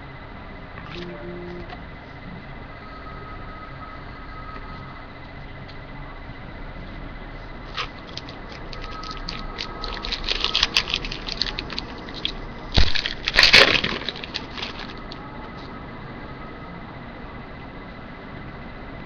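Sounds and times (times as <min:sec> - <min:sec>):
cards and wrapper crackling: 0:07.7 - 0:15.2.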